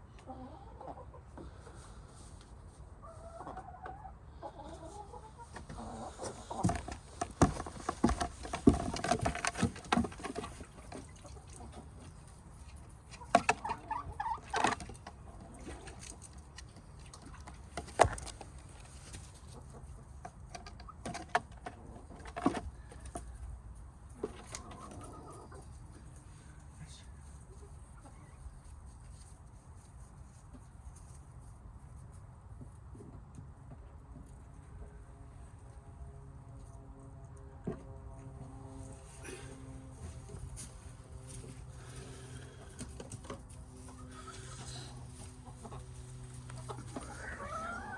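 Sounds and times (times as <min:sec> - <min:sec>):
hens clucking softly: 0:00.0 - 0:29.3, 0:39.1 - 0:47.9.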